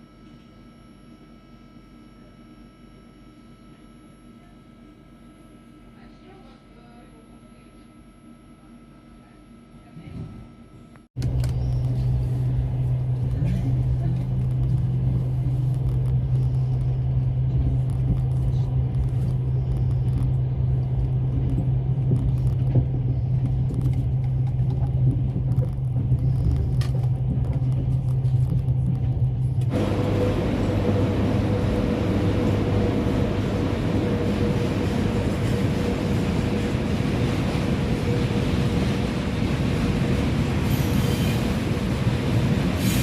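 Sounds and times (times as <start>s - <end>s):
train rumble heard on board: 9.8s - 43.0s.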